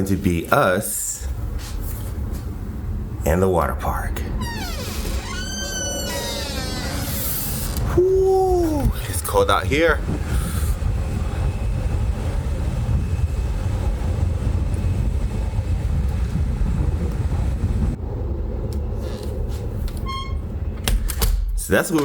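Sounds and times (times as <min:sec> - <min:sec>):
wind buffeting microphone: 0:07.0 - 0:20.8.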